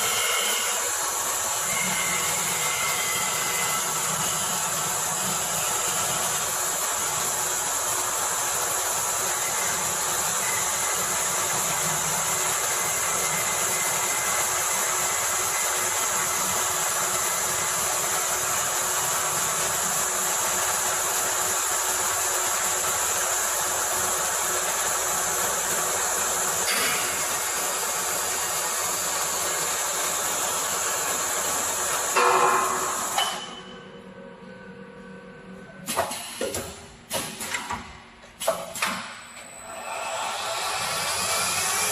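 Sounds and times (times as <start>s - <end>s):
wood lathe cutting: 39.9s - 41.9s.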